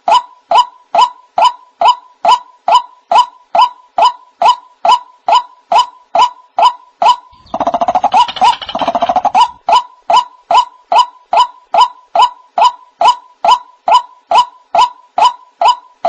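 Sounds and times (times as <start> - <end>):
harsh stuttering croaks: 7.3 - 9.6
waterhen calling: 7.3 - 9.7.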